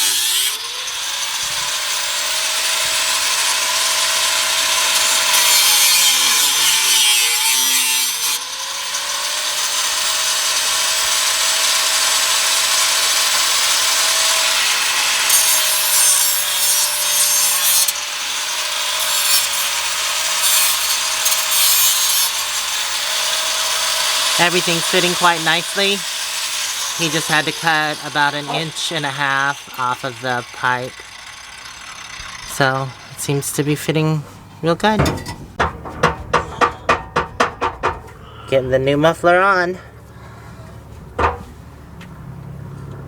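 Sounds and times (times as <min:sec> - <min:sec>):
power saw cutting metal pipe: 0:00.0 - 0:34.2.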